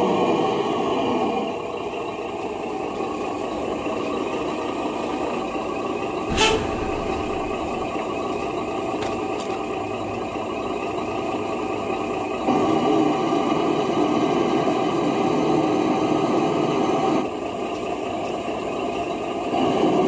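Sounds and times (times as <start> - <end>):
truck engine running: 1.6 - 13.4
air brake hiss: 6.3 - 8.0.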